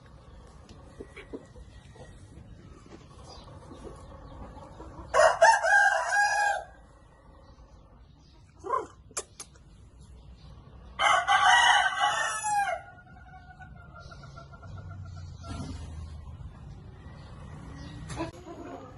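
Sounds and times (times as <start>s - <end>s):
rooster crowing: 5.1s - 6.8s, 11.0s - 13.1s.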